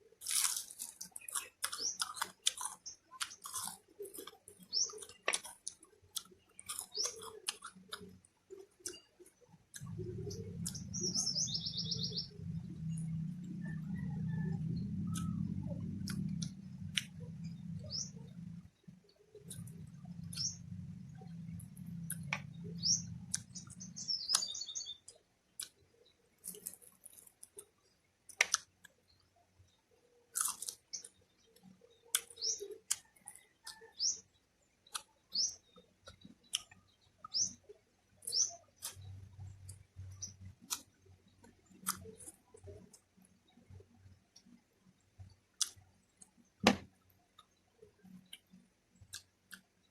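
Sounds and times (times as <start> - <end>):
person chewing food: 0.1 - 11.0, 14.5 - 18.6, 19.3 - 24.6, 25.6 - 25.8, 26.4 - 29.0, 30.3 - 31.2, 32.0 - 33.9, 38.8 - 39.1, 41.7 - 43.1, 45.6 - 46.8
bird chirps: 1.2 - 5.4, 6.2 - 25.2, 30.9 - 40.6.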